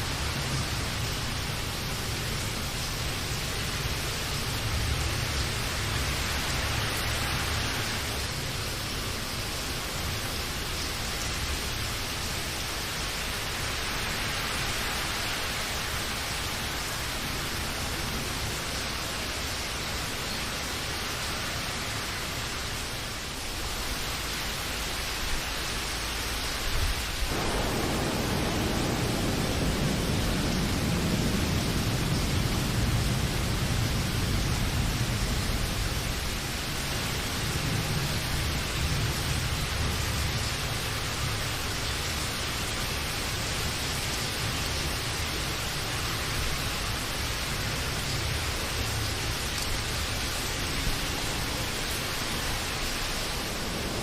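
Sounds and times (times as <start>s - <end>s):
rain hiss: 0.0s - 54.0s
distant thunder rumble: 27.2s - 36.3s, 52.1s - 54.0s.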